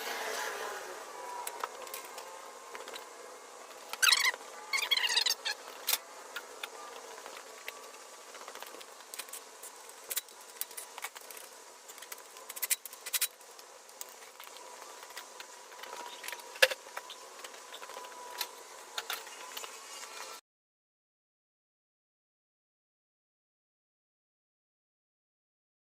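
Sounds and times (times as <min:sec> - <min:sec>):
squeaky wavering sound: 0:03.9 - 0:05.8.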